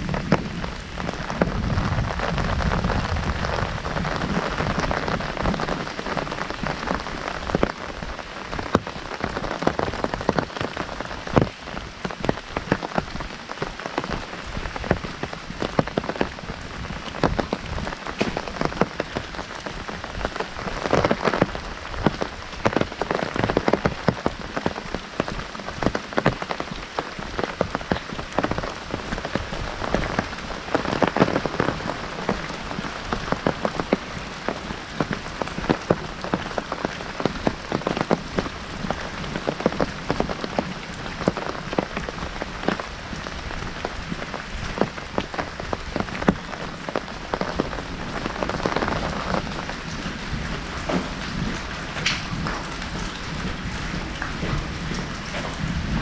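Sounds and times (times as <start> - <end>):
heavy rain on an umbrella: 0.0 - 56.0.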